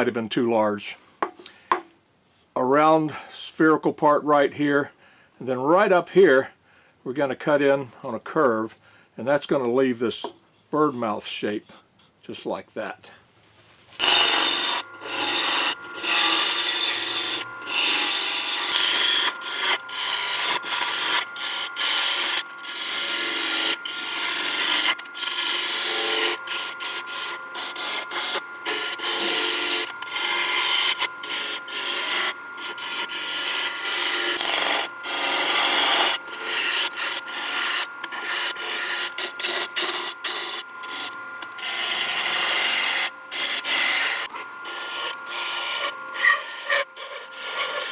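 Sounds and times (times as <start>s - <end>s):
faint steady whine: 0.0s - 47.9s
lathe tool scraping wood: 14.0s - 47.9s.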